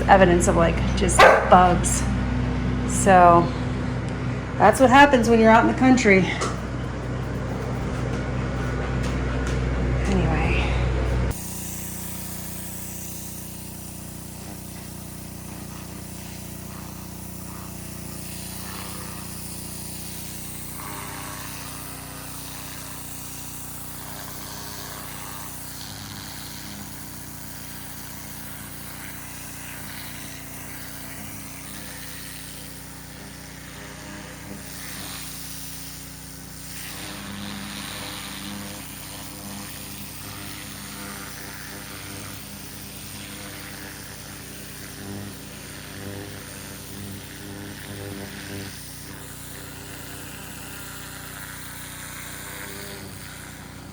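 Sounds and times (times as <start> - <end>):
small petrol engine running: 11.0 - 53.9.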